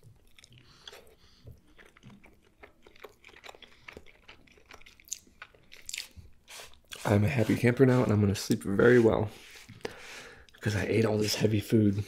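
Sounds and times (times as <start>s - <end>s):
chewing with mouth closed: 0.0s - 7.0s.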